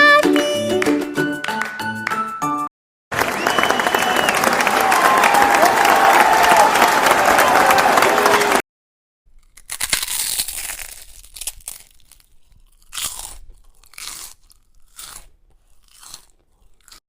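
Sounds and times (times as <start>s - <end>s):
cookie crunching when bitten: 9.3s - 17.0s.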